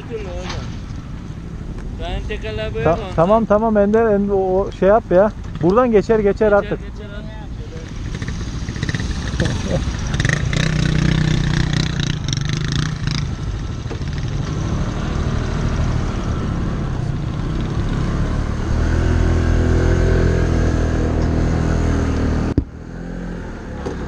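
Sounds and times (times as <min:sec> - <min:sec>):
motorcycle engine running: 0:07.6 - 0:21.7.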